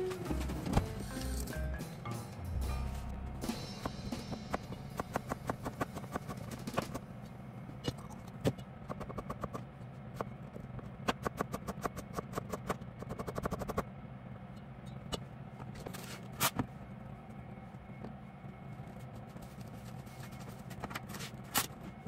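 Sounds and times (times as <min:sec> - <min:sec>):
low hum: 0:00.0 - 0:10.8.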